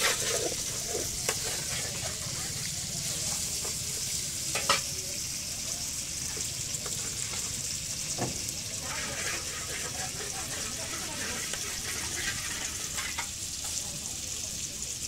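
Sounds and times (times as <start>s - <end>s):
shrimp sizzling in oil: 0.0s - 15.0s.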